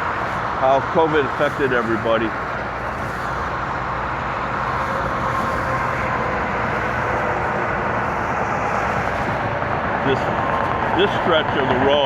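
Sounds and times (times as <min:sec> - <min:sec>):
road and traffic noise: 0:00.0 - 0:12.0.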